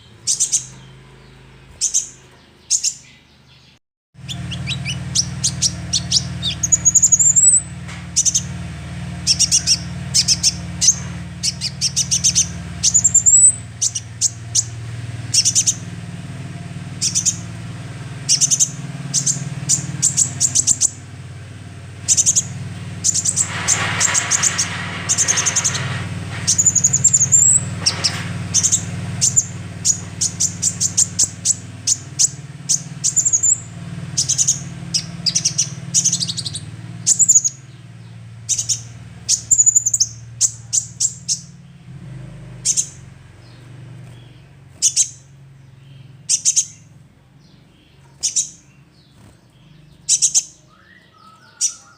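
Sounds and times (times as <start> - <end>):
sunbird chirping: 0.0 - 51.9
rising whistled bird notes: 22.1 - 37.8, 50.0 - 51.9
harsh rasping bird call: 49.6 - 51.9.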